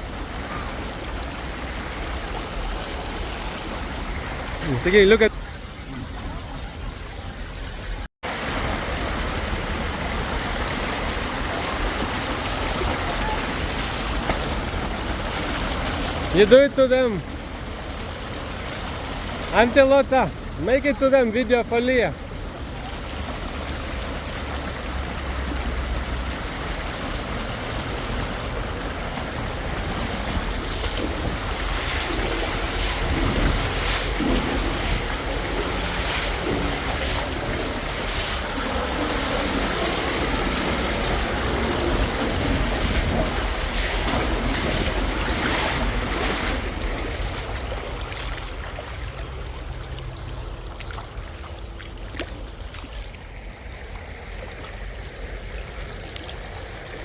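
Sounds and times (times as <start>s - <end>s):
fast water rushing: 0.0s - 57.0s
wind buffeting microphone: 27.8s - 47.8s.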